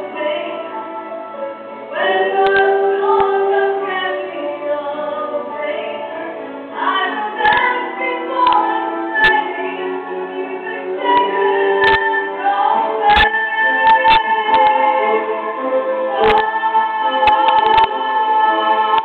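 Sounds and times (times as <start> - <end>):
accompaniment beneath singing: 0.0 - 19.0
sharp clicks: 8.4 - 8.7, 16.2 - 16.5, 17.2 - 18.0.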